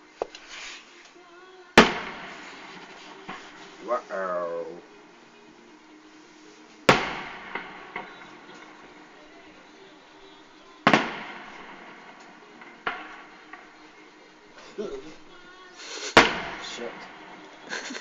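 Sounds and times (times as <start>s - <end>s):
firework shell bursts: 1.8s - 4.7s, 6.9s - 9.5s, 10.8s - 13.9s, 15.2s - 17.8s
small firework pops: 10.9s - 13.7s.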